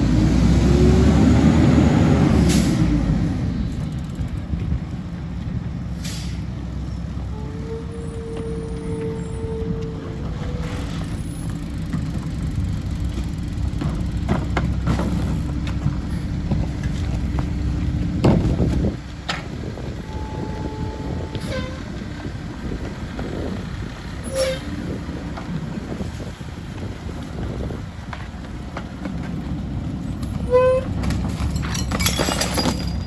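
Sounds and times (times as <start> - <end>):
diesel truck engine: 0.0 - 33.0
metal clanks and knocks: 13.1 - 17.6, 30.3 - 33.0.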